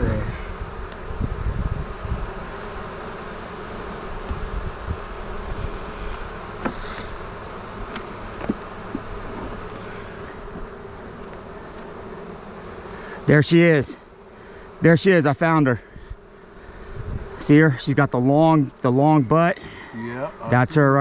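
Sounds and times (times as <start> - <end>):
honeybees buzzing: 0.0 - 21.0
hive frames knocking and clicking: 6.0 - 7.0, 7.8 - 9.6, 10.2 - 12.2.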